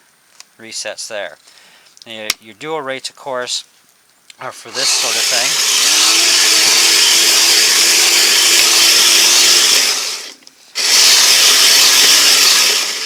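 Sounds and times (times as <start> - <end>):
electric toy motor and gearing: 4.7 - 13.0.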